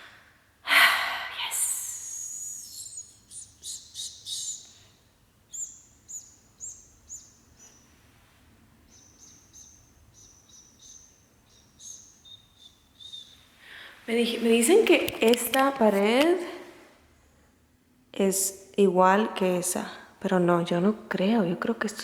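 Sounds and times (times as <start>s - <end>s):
small bird chirping: 1.4s - 8.1s, 8.8s - 13.6s.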